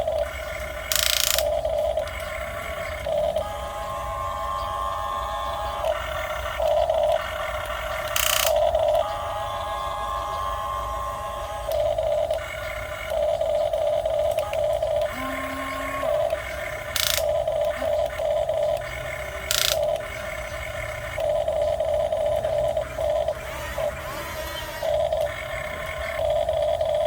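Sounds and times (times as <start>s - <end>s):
electric gear motors whirring: 0.0s - 27.0s.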